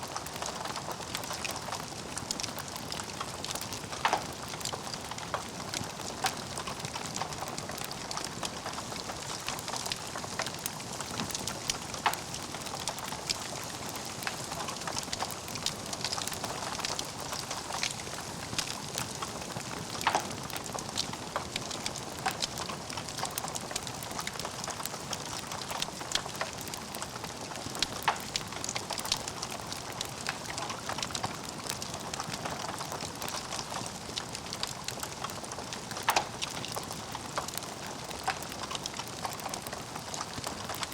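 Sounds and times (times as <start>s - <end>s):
wood fire hissing and crackling: 0.0s - 40.9s
sharp pops of burning logs: 3.1s - 19.2s, 19.8s - 27.0s, 27.7s - 30.1s.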